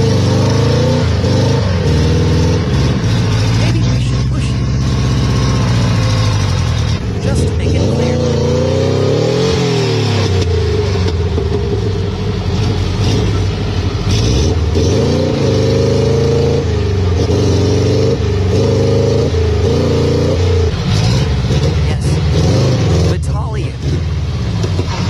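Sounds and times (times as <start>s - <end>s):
car engine revving unevenly: 0.0s - 25.0s.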